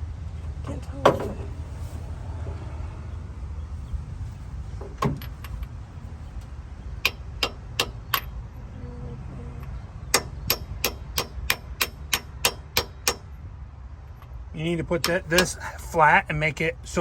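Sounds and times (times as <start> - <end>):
steady low rumble: 0.0 - 17.0
hammer tapping metal: 7.0 - 8.3, 10.1 - 13.3.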